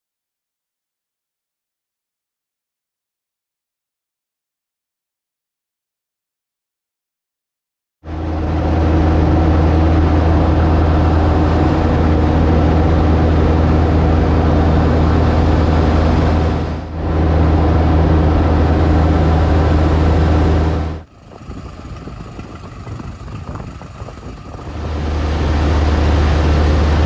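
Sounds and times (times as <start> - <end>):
light aircraft engine and propeller: 8.1 - 27.0.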